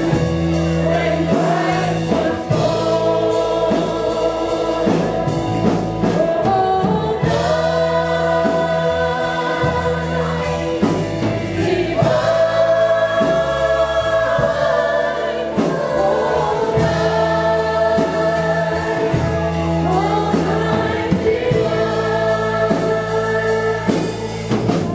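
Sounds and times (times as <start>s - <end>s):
choir singing with instrumental backing: 0.0s - 24.9s.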